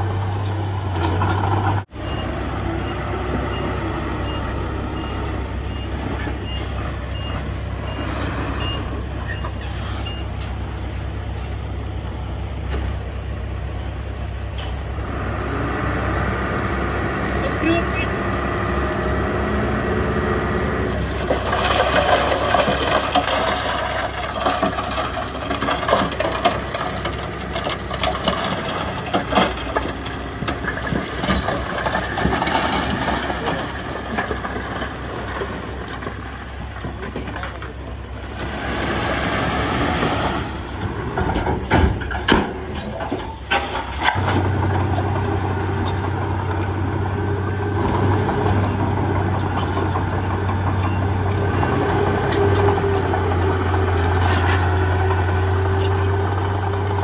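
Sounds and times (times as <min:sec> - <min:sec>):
heavy diesel machinery working: 0:00.0 - 0:57.0
low engine hum: 0:00.0 - 0:57.0
knocks and clanks: 0:20.9 - 0:37.9, 0:40.0 - 0:57.0.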